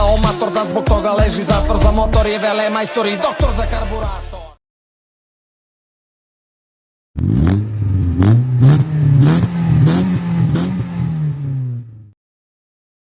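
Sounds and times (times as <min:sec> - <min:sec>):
car engine revving: 0:07.2 - 0:12.2.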